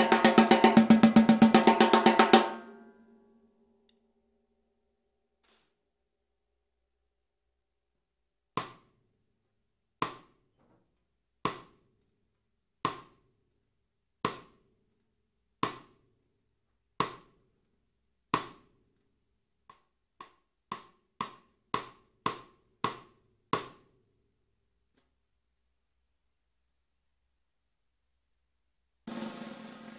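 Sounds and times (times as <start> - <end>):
drum struck with a stick: 0.0 - 2.8, 29.1 - 29.9.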